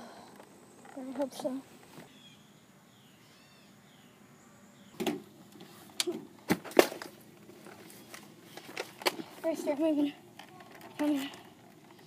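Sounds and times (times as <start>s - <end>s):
faint bird chirps: 0.6s - 5.0s.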